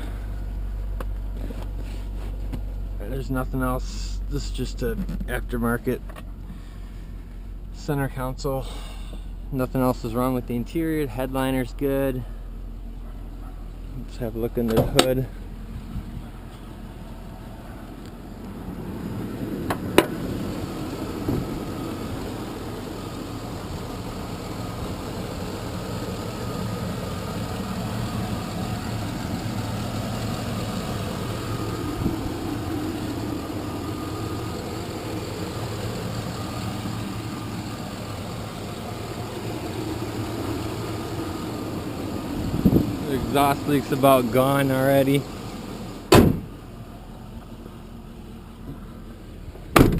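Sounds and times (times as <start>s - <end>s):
truck engine idling: 0.0s - 49.9s.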